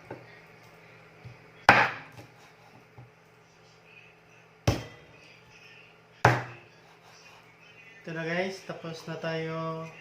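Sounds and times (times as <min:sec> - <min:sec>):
knife chopping on cutting board: 0:01.2 - 0:03.1, 0:06.2 - 0:06.6.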